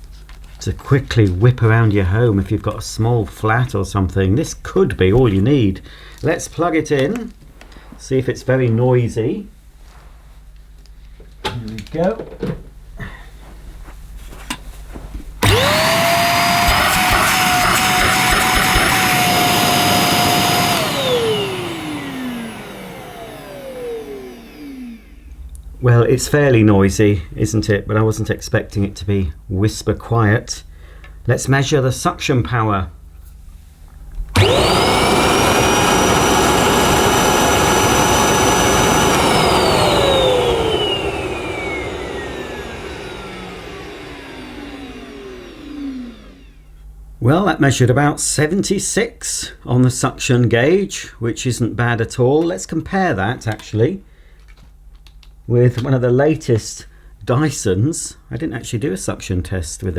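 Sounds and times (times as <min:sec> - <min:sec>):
handheld vacuum cleaner whining: 0:15.4 - 0:25.3, 0:34.3 - 0:46.7.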